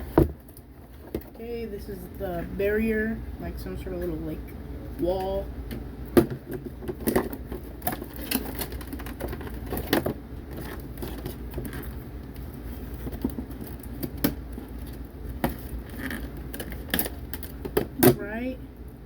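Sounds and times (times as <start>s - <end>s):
steady low hum: 0.0s - 19.0s
packaging rustling: 6.9s - 17.6s.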